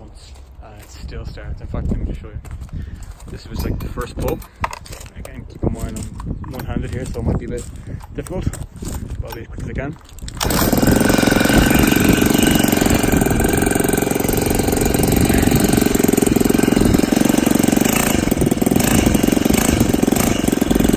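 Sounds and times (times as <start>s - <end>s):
small engine pull-started: 10.1s - 20.9s.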